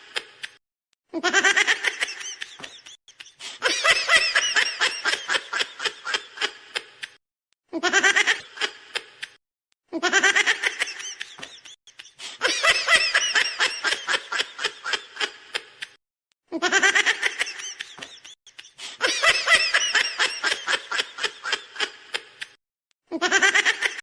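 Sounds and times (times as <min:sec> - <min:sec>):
high-pitched laughter: 0:01.1 - 0:07.1, 0:07.7 - 0:09.2, 0:09.9 - 0:24.0.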